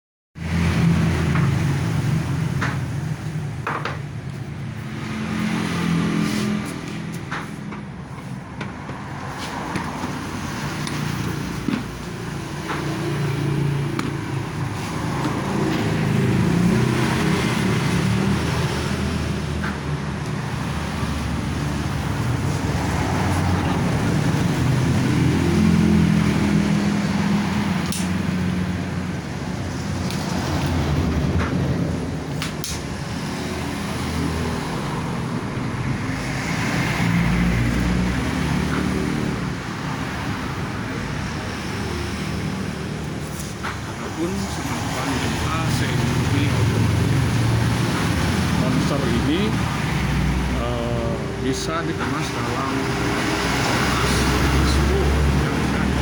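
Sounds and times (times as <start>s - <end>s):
road traffic rumble: 0.4s - 56.0s.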